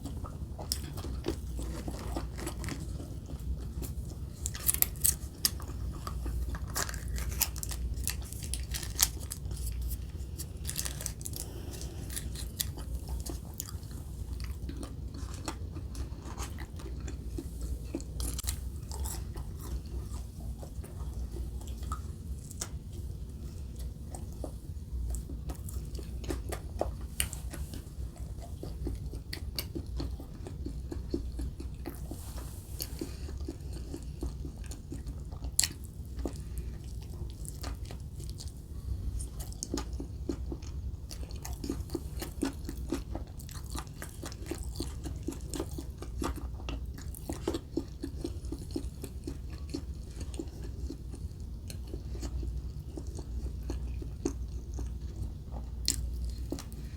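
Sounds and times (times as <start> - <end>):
chewing and crunching food: 0.0 - 56.9.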